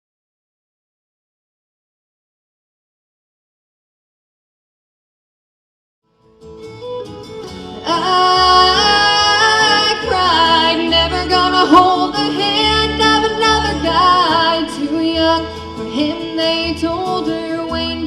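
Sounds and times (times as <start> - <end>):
guitar accompaniment: 6.1 - 18.0
steady bass: 7.0 - 18.0
woman singing country ballad: 7.5 - 18.0.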